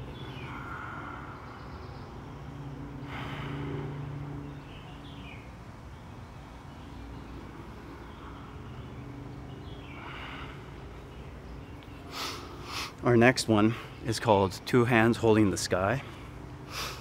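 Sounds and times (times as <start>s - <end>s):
bird chirps: 0.0s - 12.6s
steady low hum: 0.0s - 17.0s.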